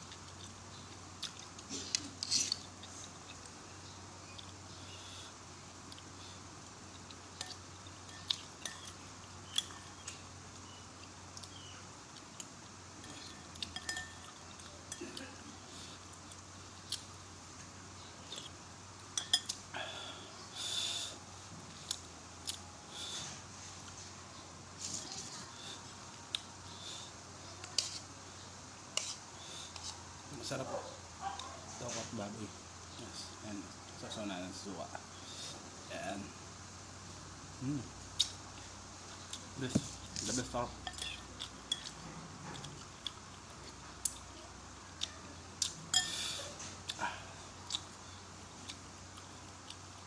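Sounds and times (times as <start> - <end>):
spoon clinking against a bowl: 7.4 - 10.1, 13.0 - 15.0, 19.1 - 19.6, 40.8 - 42.0, 45.9 - 46.3.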